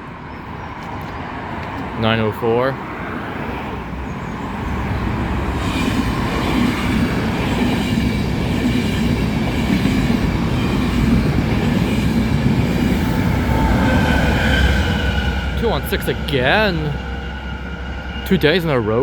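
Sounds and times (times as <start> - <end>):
train wheels rumbling on rails: 3.9 - 19.0.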